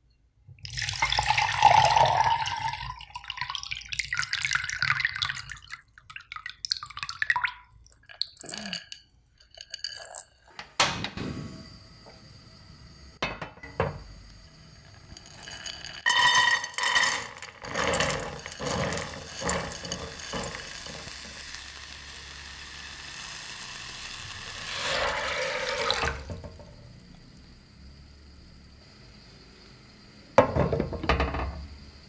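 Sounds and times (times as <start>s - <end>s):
water splashing into a pot: 0.6s - 10.3s, 15.2s - 27.5s.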